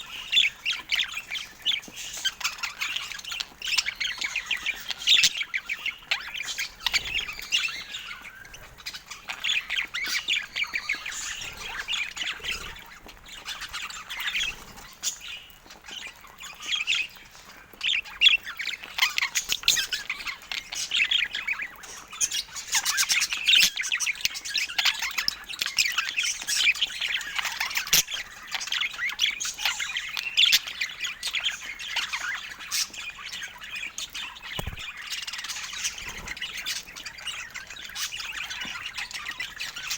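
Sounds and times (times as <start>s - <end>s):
budgerigars chirping and squawking: 0.0s - 39.9s.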